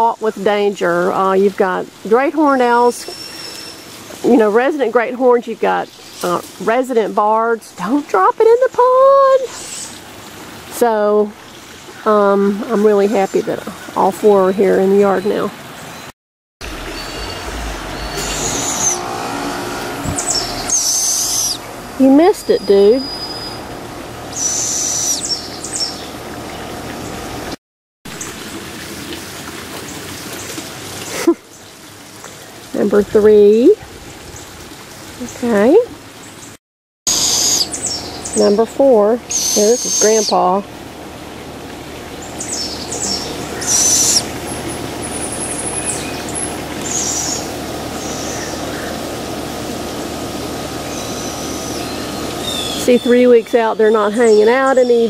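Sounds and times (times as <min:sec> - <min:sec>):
thin high bird calls: 0:03.0 - 0:04.2, 0:16.8 - 0:27.2, 0:37.1 - 0:38.6, 0:39.3 - 0:40.5, 0:42.2 - 0:44.3, 0:45.0 - 0:49.0, 0:50.9 - 0:55.0
raspy hissing bird call: 0:09.4 - 0:10.0, 0:18.2 - 0:21.6, 0:24.3 - 0:26.1, 0:37.1 - 0:38.1, 0:39.3 - 0:40.5, 0:42.4 - 0:44.3, 0:46.8 - 0:49.0, 0:50.9 - 0:53.0.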